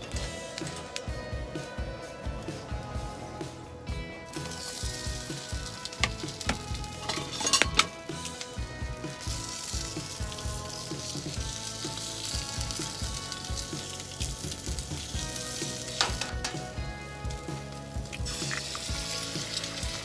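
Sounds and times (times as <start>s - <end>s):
food sizzling in a pan: 4.3s - 20.0s.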